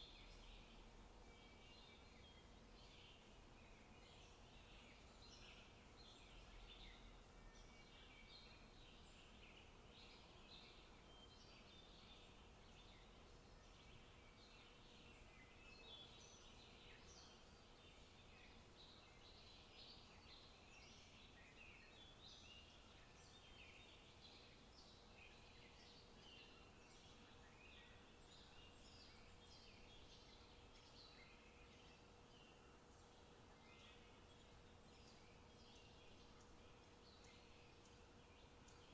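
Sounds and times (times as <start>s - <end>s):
faint steady hum: 0.0s - 38.9s
soft hiss: 0.0s - 38.9s.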